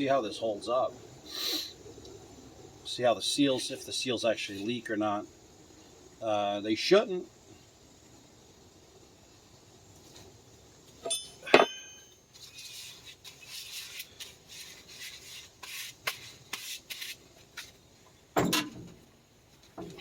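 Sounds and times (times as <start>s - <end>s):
sharp metallic clinks: 11.0s - 12.2s
tools and parts rustling: 11.0s - 17.8s, 18.4s - 20.0s.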